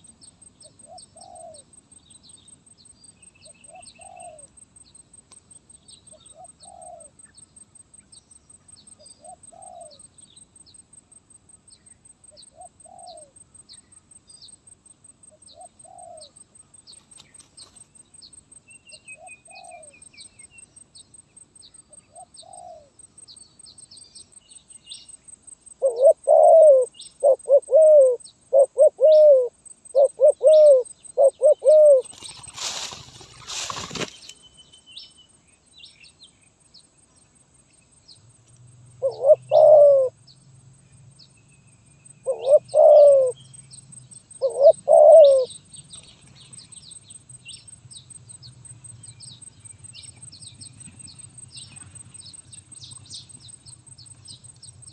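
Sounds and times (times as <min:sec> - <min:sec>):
dove cooing: 0:00.8 - 0:01.7, 0:03.6 - 0:04.5, 0:06.1 - 0:07.2, 0:09.2 - 0:10.0, 0:15.6 - 0:16.3, 0:19.2 - 0:19.9, 0:22.1 - 0:22.9, 0:25.8 - 0:32.3, 0:39.0 - 0:40.2, 0:42.2 - 0:43.4, 0:44.4 - 0:45.6.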